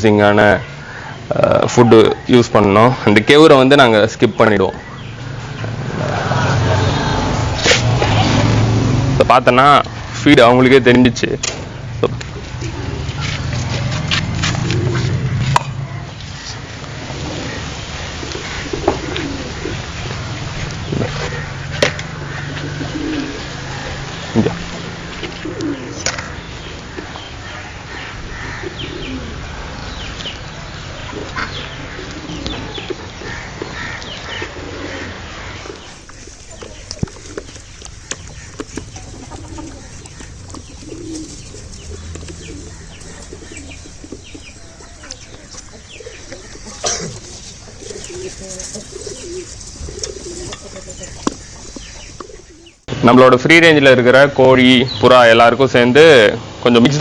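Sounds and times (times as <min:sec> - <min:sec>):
small birds chirping: 0:00.0 - 0:53.2
pigeons cooing: 0:11.7 - 0:52.9.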